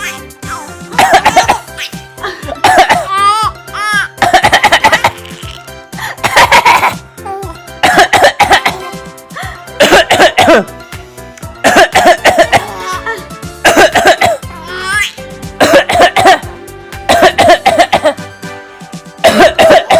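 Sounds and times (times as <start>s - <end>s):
baby squealing and laughing: 0.0s - 2.3s, 3.0s - 4.2s, 4.8s - 5.8s, 12.6s - 13.2s, 14.6s - 15.2s
background music: 0.0s - 19.9s
man coughing: 1.0s - 3.1s, 4.2s - 5.2s, 6.0s - 7.0s, 7.8s - 8.9s, 9.8s - 10.8s, 11.6s - 12.7s, 13.6s - 14.4s, 15.6s - 16.4s, 17.1s - 18.2s, 19.2s - 19.9s.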